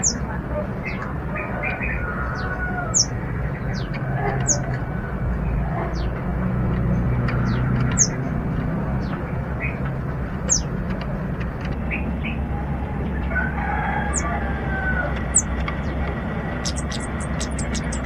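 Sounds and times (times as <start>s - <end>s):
distant rooster crowing: 1.3s - 6.0s, 12.4s - 15.6s
steady low hum: 8.1s - 18.0s
soft bird chirps: 16.6s - 18.0s.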